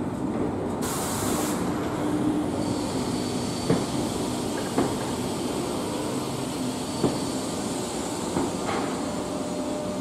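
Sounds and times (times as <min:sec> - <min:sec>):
air hiss: 0:00.8 - 0:01.8, 0:02.5 - 0:09.3.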